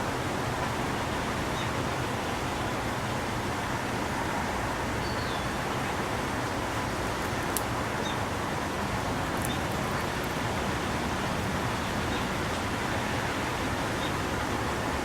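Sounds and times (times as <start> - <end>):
outdoor background rush: 0.0 - 15.0
small click: 7.5 - 7.7.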